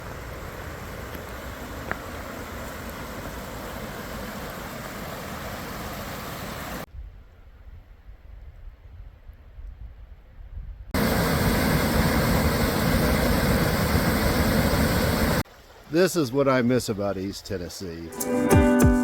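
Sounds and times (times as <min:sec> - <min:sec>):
water rushing: 0:00.0 - 0:06.9, 0:11.0 - 0:18.8.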